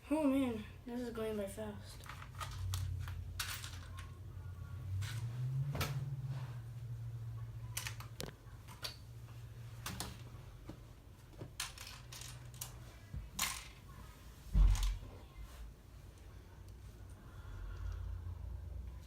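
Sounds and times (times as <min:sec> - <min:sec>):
plastic bricks clicking and rattling: 0:02.0 - 0:04.1.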